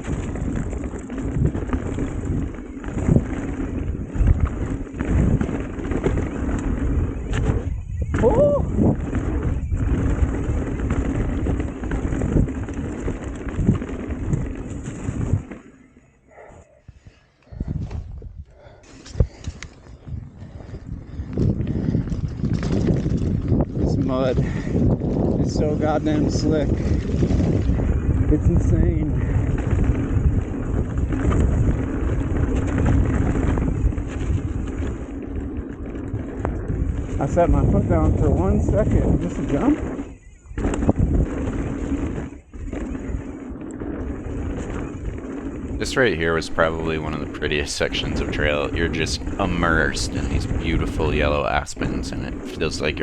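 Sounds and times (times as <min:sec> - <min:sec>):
bike thumps and rattles: 0:00.0 - 0:15.7, 0:21.4 - 0:25.6, 0:29.2 - 0:45.8
bike tyre noise: 0:00.0 - 0:53.0
rushing wind: 0:00.0 - 0:53.0.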